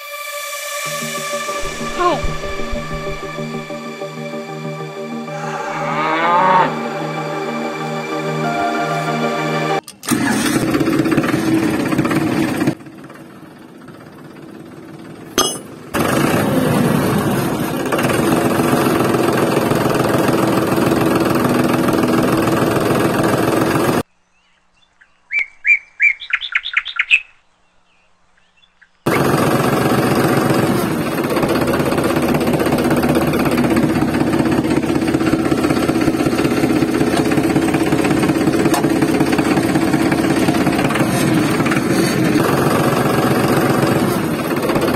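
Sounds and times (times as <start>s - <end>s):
model tractor engine running: 9.8s - 24.0s, 29.1s - 44.9s
bird chirping: 24.1s - 29.1s.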